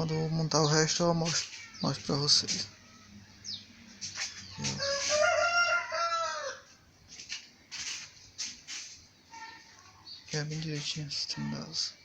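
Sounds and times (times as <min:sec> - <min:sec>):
rooster crowing: 0:04.6 - 0:06.8.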